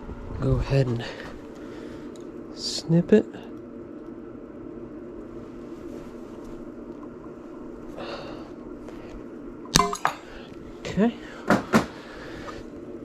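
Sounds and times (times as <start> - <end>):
low mechanical hum: 0.0 - 13.0
soft rustle: 5.3 - 6.7.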